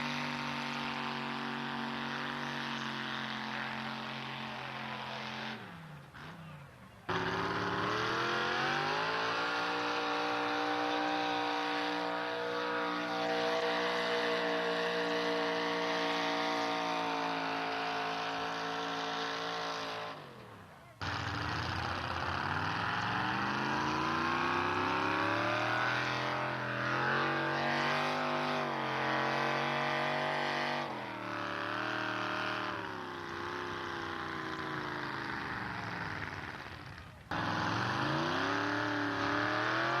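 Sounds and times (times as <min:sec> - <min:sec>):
truck engines at high revs: 0:00.0 - 0:40.0.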